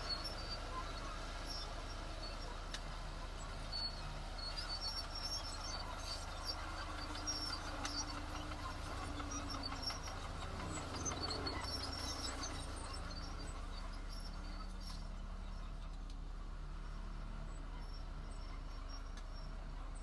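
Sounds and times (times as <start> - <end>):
diesel engine of heavy machinery: 0.0 - 20.0
high-pitched squeaks and clicks: 4.5 - 15.0.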